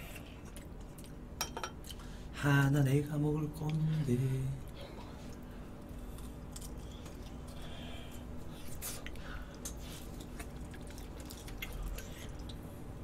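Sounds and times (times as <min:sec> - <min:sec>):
person chewing and biting food: 0:05.3 - 0:12.5.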